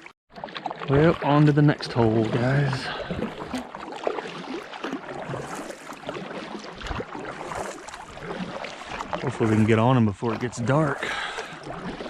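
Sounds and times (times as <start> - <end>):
paddle splashing in water: 0.0 - 12.0.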